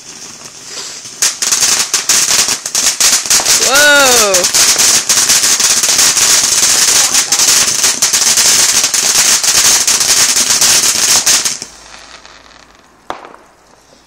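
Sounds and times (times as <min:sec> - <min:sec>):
firework crackling: 0:00.0 - 0:14.0
high hiss: 0:00.0 - 0:14.0.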